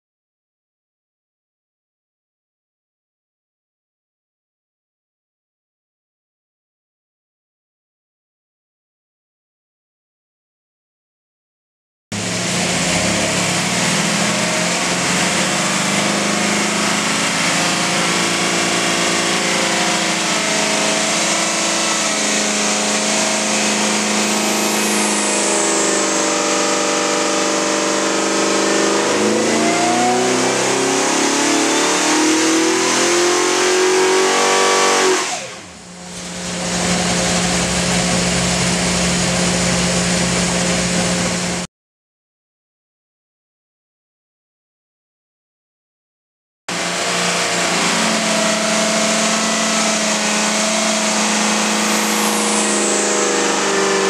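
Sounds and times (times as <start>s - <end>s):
engine revving on dyno: 12.1s - 41.7s, 46.7s - 54.0s.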